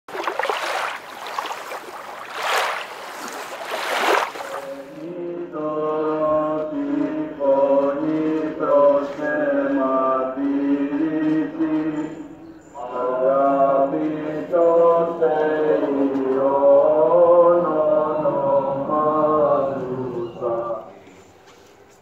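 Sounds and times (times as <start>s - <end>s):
sea water washing in: 0.0s - 5.0s
voices chanting over drone: 4.5s - 21.2s.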